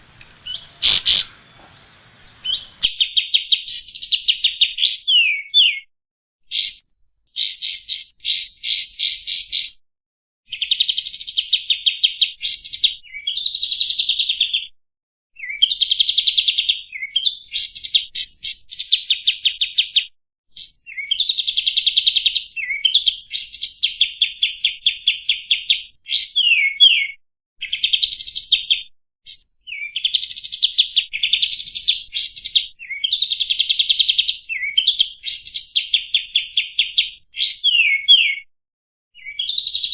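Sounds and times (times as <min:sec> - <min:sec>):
songbird singing trills and whistles: 0:00.1 - 0:05.9, 0:06.5 - 0:09.8, 0:10.5 - 0:14.7, 0:15.4 - 0:38.5, 0:39.2 - 0:39.9.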